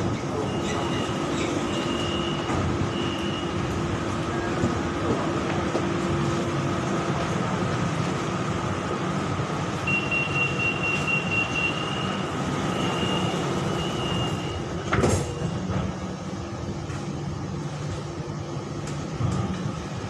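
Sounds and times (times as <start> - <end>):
electric train hum: 0.0 - 20.0
high steady tone: 9.8 - 14.6.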